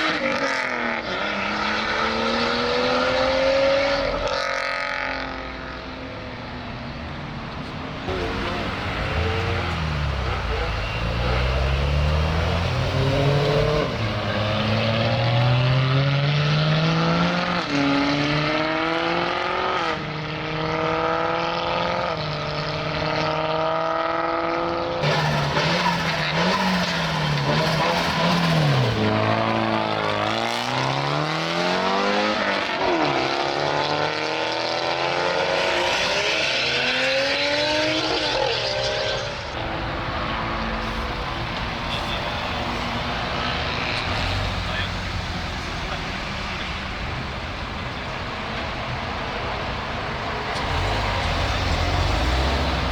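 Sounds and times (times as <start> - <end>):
car engines revving and accelerating: 0.0 - 52.9.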